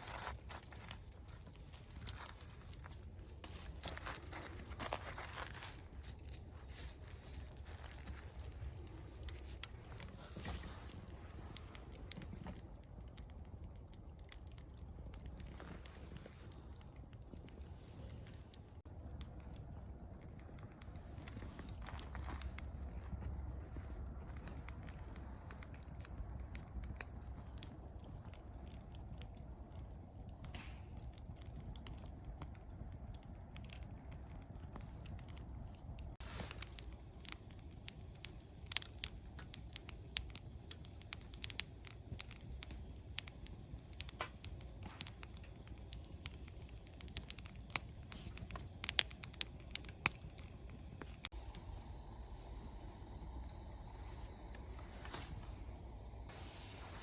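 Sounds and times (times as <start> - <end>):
campfire pops and snaps: 0.0 - 56.0
low steady fire rumble: 0.0 - 57.0.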